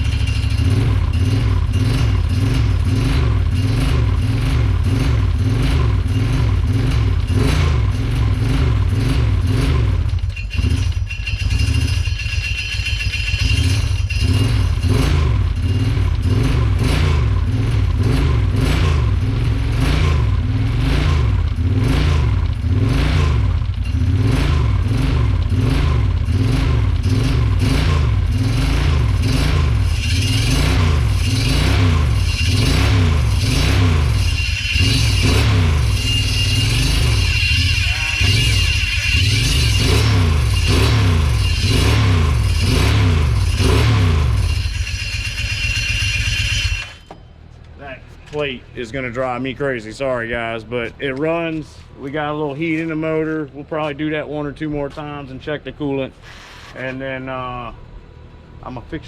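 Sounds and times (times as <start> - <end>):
atv engine revving: 0.0 - 47.1.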